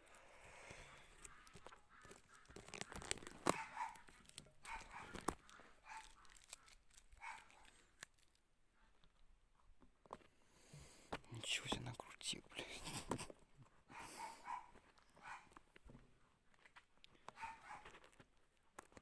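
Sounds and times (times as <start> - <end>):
animal barking: 1.3 - 6.5, 7.2 - 7.7, 13.9 - 15.6, 17.3 - 17.9.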